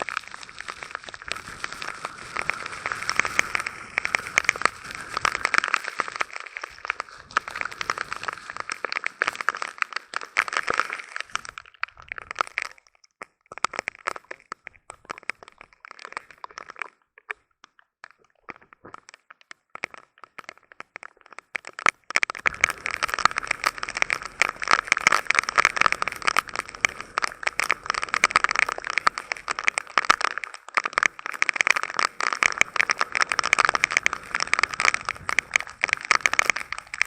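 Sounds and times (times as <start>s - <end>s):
heavy rain pattering: 0.0s - 12.7s, 22.2s - 37.0s.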